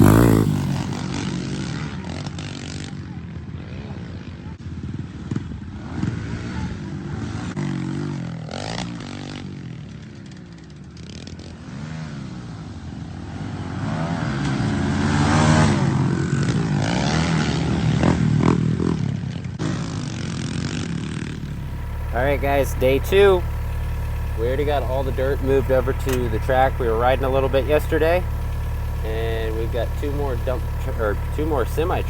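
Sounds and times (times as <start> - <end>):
small motorcycle engine revving: 0.0 - 2.4, 21.2 - 32.0.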